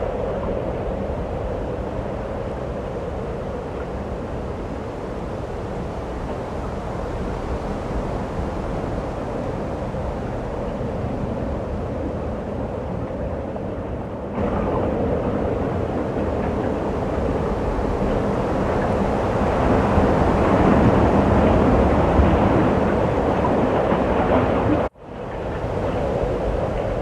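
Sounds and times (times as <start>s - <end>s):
snowstorm wind rushing: 14.2s - 27.0s.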